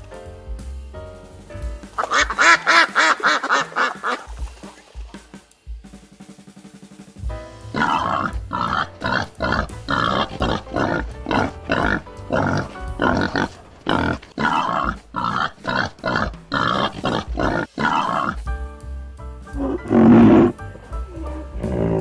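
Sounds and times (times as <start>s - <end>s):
background music: 0.0s - 22.0s
boars grunting: 2.0s - 5.1s, 7.6s - 18.5s, 19.5s - 22.0s.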